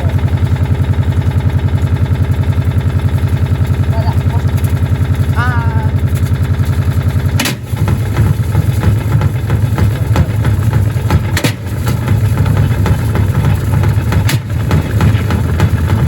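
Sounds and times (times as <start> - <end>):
washing machine pulsing rumble: 0.0 - 16.0
bricks banging in drum: 7.4 - 16.0.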